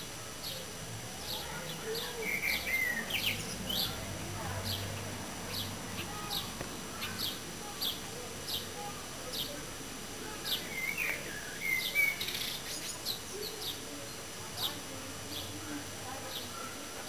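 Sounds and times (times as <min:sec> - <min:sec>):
bird chirping: 0:01.2 - 0:04.0, 0:10.4 - 0:15.6.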